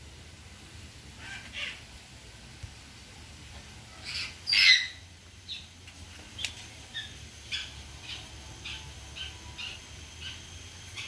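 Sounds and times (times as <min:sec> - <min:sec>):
high bird calls: 0:04.0 - 0:05.8, 0:06.4 - 0:11.0.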